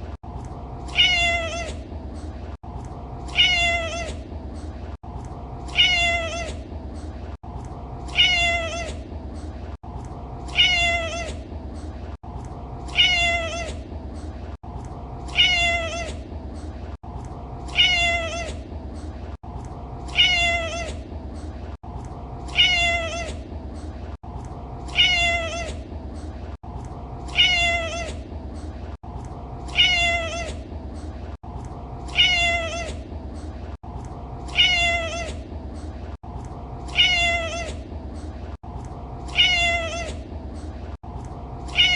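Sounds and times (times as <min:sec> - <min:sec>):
low background hum: 0:00.0 - 0:41.9
cat meowing: 0:00.9 - 0:01.8, 0:03.3 - 0:04.2, 0:05.7 - 0:06.6, 0:08.1 - 0:09.0, 0:10.5 - 0:11.4, 0:12.9 - 0:13.8, 0:15.3 - 0:16.2, 0:17.7 - 0:18.6, 0:20.1 - 0:21.0, 0:22.5 - 0:23.4, 0:24.9 - 0:25.8, 0:27.3 - 0:28.2, 0:29.7 - 0:30.6, 0:32.1 - 0:33.0, 0:34.5 - 0:35.4, 0:36.9 - 0:37.8, 0:39.3 - 0:40.2, 0:41.7 - 0:41.9.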